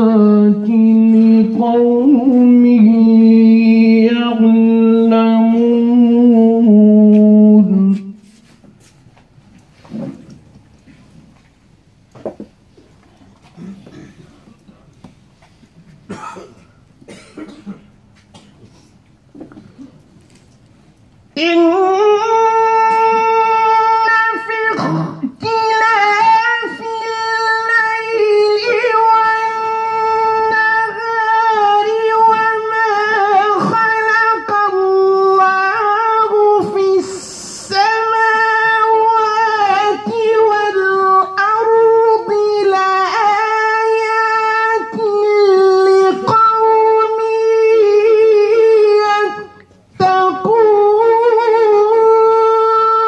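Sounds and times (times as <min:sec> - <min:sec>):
man chanting melodic recitation: 0:00.0 - 0:08.4, 0:21.4 - 0:53.0.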